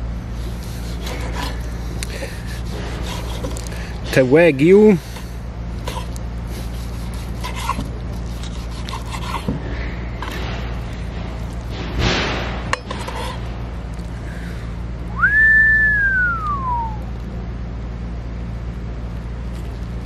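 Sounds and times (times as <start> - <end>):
steady low hum: 0.0 - 20.0
knife scrape: 0.4 - 4.2, 5.1 - 10.5, 12.7 - 13.5
rising and falling whistle: 15.1 - 17.1.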